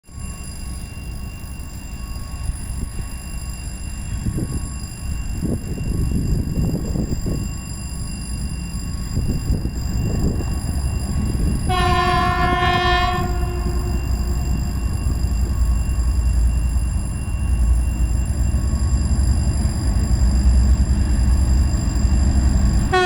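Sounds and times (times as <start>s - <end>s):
freight train rumble: 0.1s - 23.0s
locomotive horn blast: 11.6s - 14.8s.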